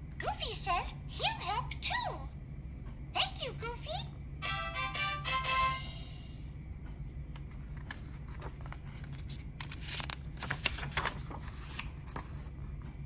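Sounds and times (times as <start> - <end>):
book pages turning: 7.4 - 13.0.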